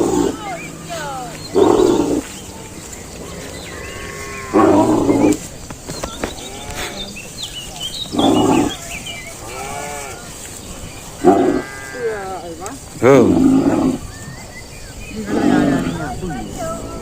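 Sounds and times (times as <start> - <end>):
cattle mooing: 0.0 - 5.5, 8.1 - 10.4, 11.2 - 14.1, 15.2 - 17.0.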